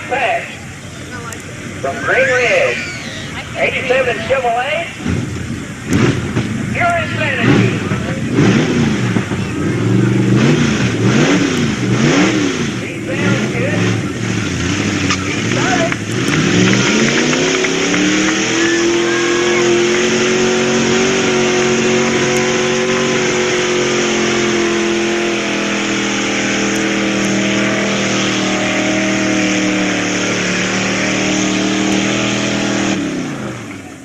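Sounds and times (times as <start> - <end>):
pickup engine at full throttle: 0.0 - 34.0.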